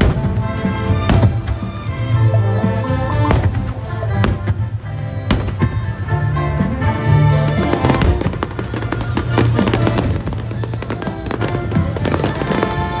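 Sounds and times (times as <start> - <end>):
fireworks crackling and popping: 0.0 - 13.0
music playing: 0.0 - 13.0.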